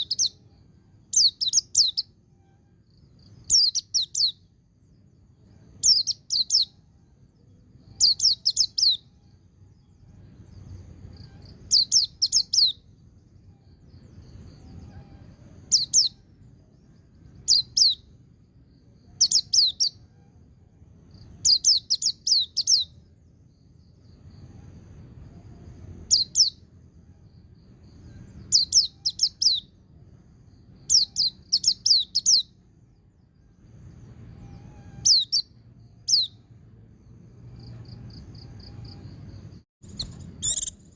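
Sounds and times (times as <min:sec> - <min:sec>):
bird singing high ticking notes: 0:00.0 - 0:00.5, 0:01.2 - 0:05.0, 0:05.7 - 0:09.2, 0:11.2 - 0:13.1, 0:15.6 - 0:18.2, 0:19.1 - 0:20.1, 0:21.4 - 0:24.3, 0:27.4 - 0:29.9, 0:30.6 - 0:32.6, 0:39.8 - 0:40.9
faint low rumble: 0:00.0 - 0:40.9.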